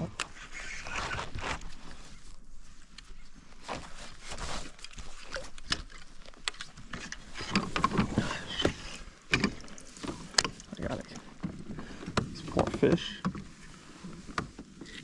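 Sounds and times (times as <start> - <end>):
water noise: 0.0 - 13.8
knocks and clicks from kayak gear: 3.0 - 13.6.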